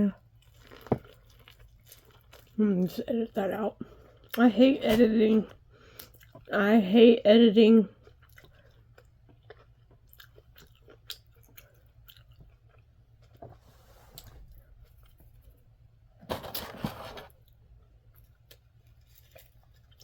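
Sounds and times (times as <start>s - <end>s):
person chewing food: 0.2s - 2.6s, 3.8s - 4.4s, 5.5s - 6.5s, 7.9s - 15.6s, 17.4s - 20.0s.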